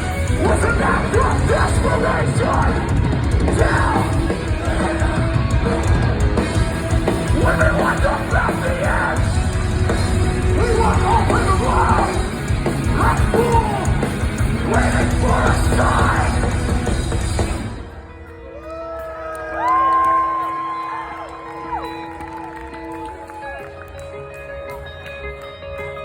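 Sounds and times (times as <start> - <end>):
heavy metal band playing: 0.0 - 18.7.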